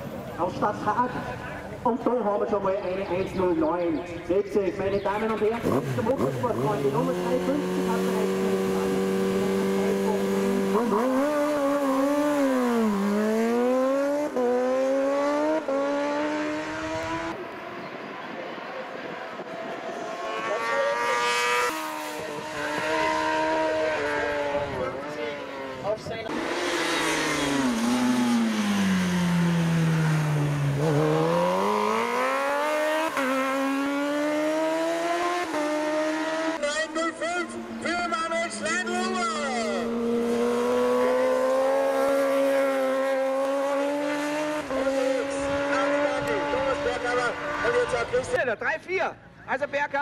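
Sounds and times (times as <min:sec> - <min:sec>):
motorcycle engine accelerating hard: 0:05.4 - 0:17.4, 0:19.9 - 0:36.9, 0:38.6 - 0:48.3.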